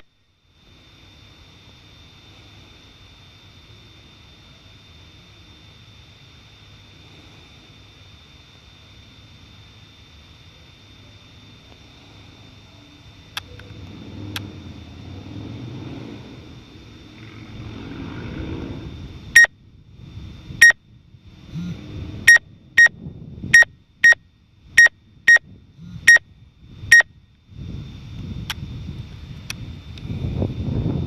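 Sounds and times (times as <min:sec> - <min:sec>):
faint high whine: 0:00.0 - 0:31.0
low rumble of wind: 0:12.5 - 0:31.0
sharp electronic beeps: 0:19.3 - 0:19.6, 0:20.6 - 0:20.8, 0:22.2 - 0:24.2, 0:24.8 - 0:26.3, 0:26.9 - 0:27.1.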